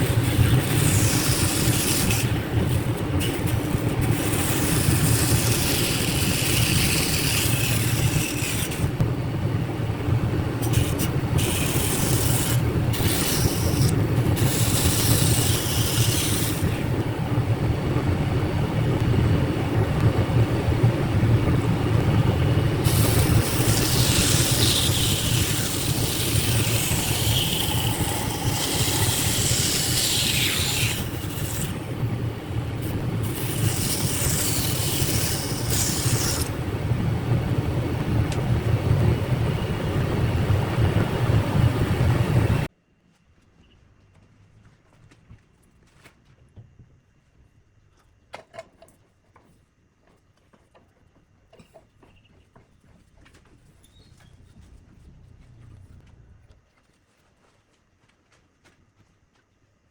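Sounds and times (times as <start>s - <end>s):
high scraping noise: 0.0s - 9.0s, 10.6s - 17.0s, 22.6s - 36.6s
power tool motor running: 0.0s - 9.0s, 10.6s - 16.9s, 22.6s - 32.0s, 32.7s - 36.6s.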